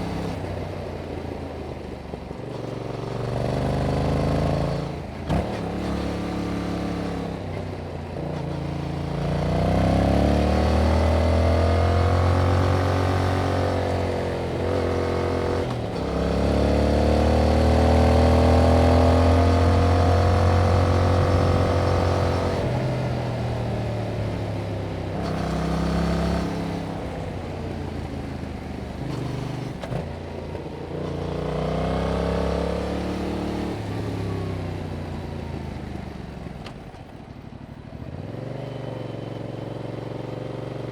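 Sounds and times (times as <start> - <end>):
motorcycle engine revving: 9.2 - 27.4.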